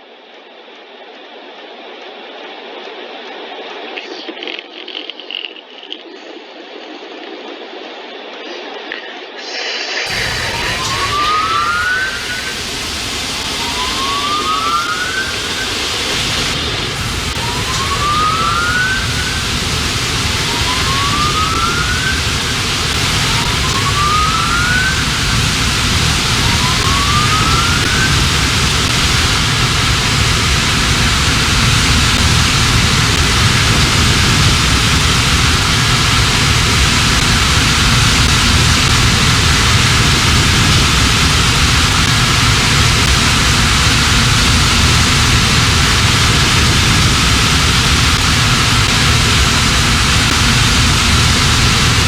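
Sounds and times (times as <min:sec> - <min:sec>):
rising whoop tone: 0:10.1 - 0:29.0
car wash spray and machinery: 0:10.1 - 0:52.0
low rumble: 0:10.1 - 0:52.0.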